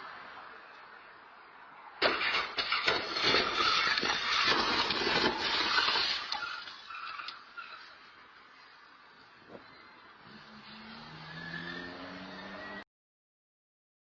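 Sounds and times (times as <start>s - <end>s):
car crash impact: 2.0s - 7.2s.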